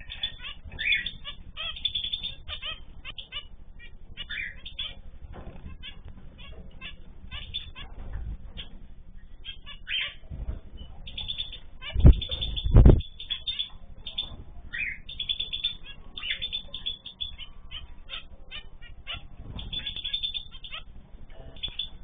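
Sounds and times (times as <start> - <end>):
cage birds chirping: 0.0 - 22.0
soft low thumps: 10.2 - 13.2.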